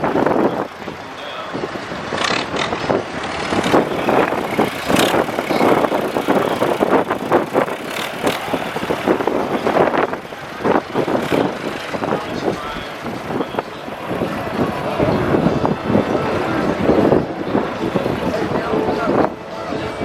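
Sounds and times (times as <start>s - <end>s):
heavy diesel vehicles running: 0.0s - 20.0s.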